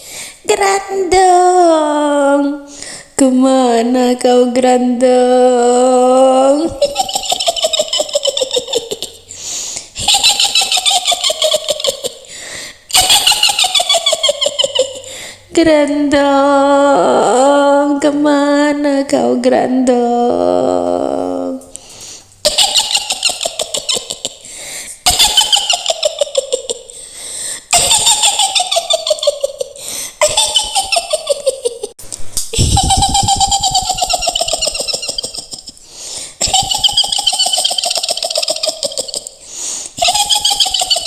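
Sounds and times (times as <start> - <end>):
high rapid cackling laugh: 6.6 - 9.3, 10.0 - 12.3, 12.9 - 15.1, 22.4 - 27.0, 27.7 - 32.0, 32.6 - 35.8, 36.4 - 39.4, 40.0 - 41.0.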